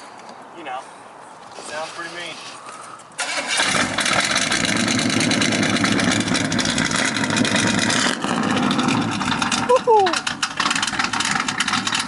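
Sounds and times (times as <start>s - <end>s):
car engine starting and idling: 3.2s - 12.0s.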